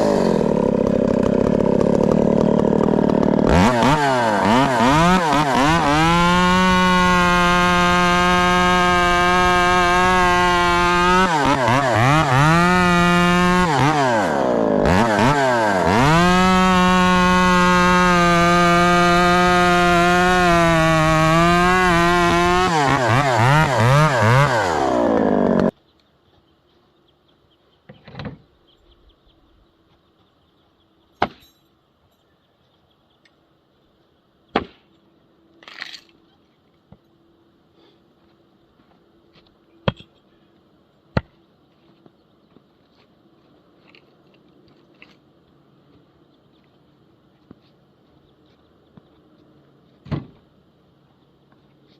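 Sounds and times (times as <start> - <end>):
chainsaw running: 0.0 - 25.7.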